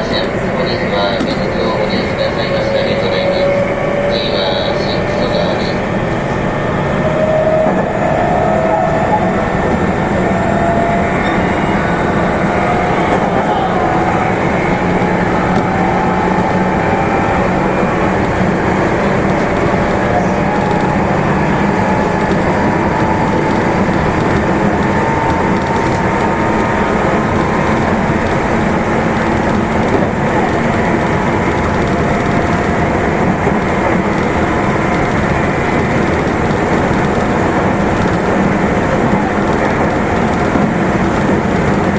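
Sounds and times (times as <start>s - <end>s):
train wheels rumbling on rail: 0.0s - 41.9s.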